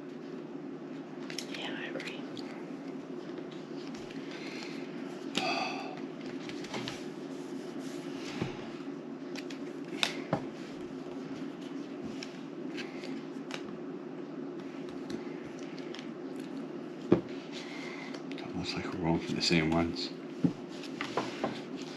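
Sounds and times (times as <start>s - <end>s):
playing cards clicking and rustling: 1.2s - 2.5s, 3.2s - 7.2s, 9.2s - 13.8s, 14.5s - 18.4s.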